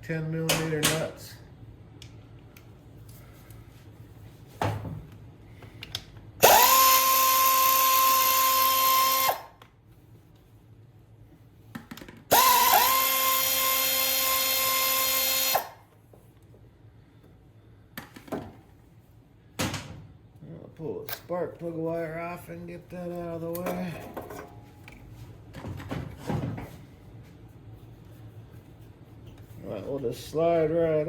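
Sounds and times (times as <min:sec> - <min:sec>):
power drill whine: 0:06.4 - 0:09.5, 0:12.3 - 0:15.8.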